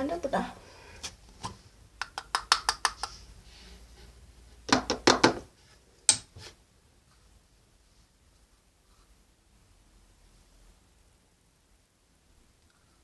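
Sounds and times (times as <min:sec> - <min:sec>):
sharp knocks on hard objects: 0:04.7 - 0:05.5.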